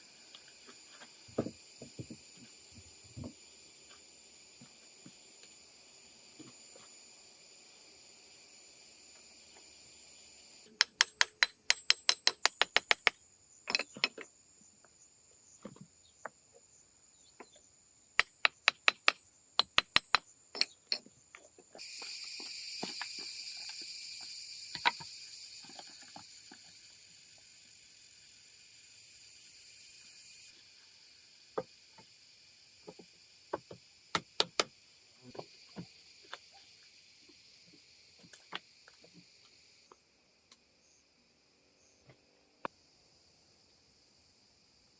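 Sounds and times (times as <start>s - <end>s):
insects chirring: 0.0s - 44.9s
hiss: 21.8s - 40.0s.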